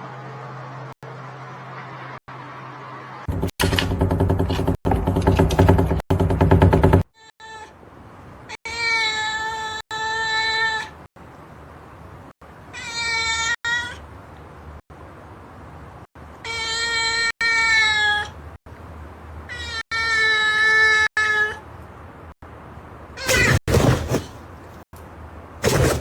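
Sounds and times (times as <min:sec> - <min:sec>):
cat meowing: 0:07.2 - 0:07.8, 0:08.6 - 0:11.0, 0:12.7 - 0:14.0, 0:16.4 - 0:18.4, 0:19.5 - 0:21.6.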